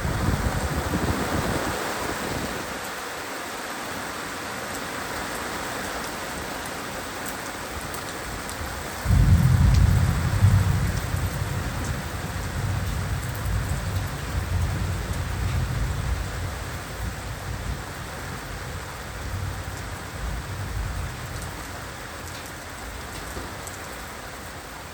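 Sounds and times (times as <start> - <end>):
heavy rain falling: 0.0 - 24.9
thunder rumbling: 9.0 - 21.6.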